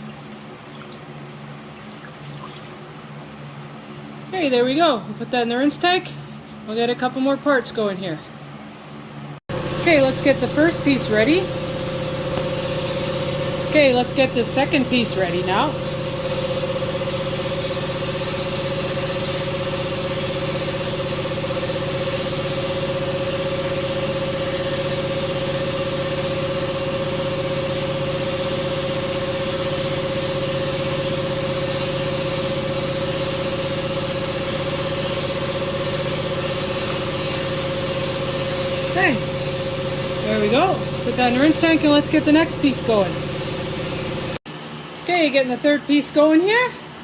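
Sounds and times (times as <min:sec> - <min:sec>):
motor humming: 0:09.5 - 0:44.4.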